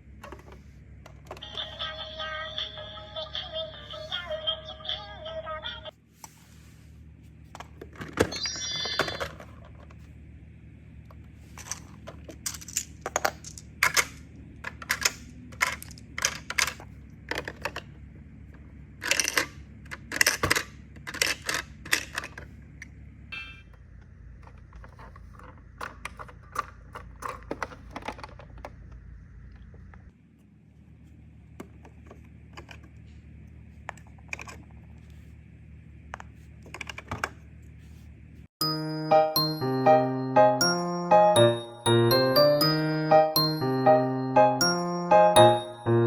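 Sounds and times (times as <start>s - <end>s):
plastic toy parts clicking: 11.6s - 17.9s, 19.0s - 22.5s
high-pitched tone: 38.6s - 46.0s.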